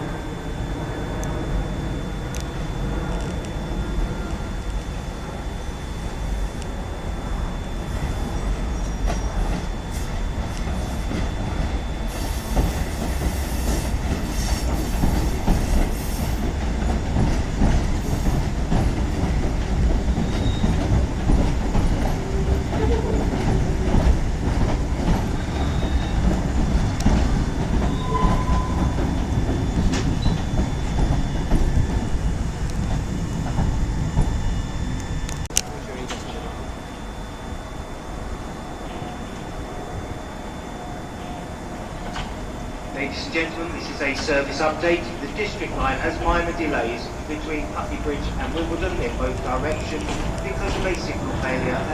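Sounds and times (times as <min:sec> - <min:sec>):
train wheels rumbling on rails: 0:00.0 - 0:51.9
hiss: 0:12.0 - 0:16.5.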